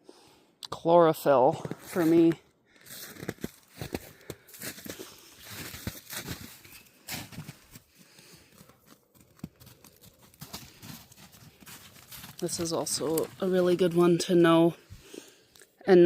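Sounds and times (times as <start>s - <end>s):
footsteps crunching in snow: 1.6s - 14.3s.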